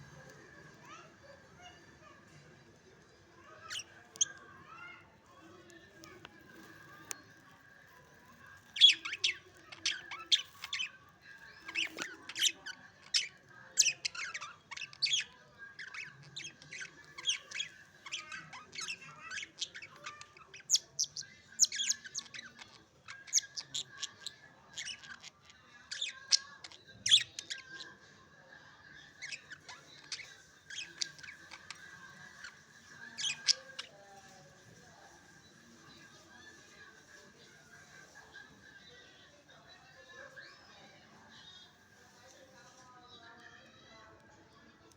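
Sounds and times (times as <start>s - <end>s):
budgerigars chirping and squawking: 8.5s - 28.0s, 29.1s - 38.5s.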